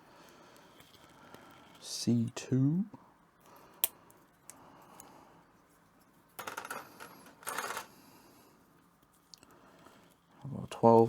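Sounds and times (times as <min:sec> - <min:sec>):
plastic parts clicking and rattling: 0:06.4 - 0:08.0.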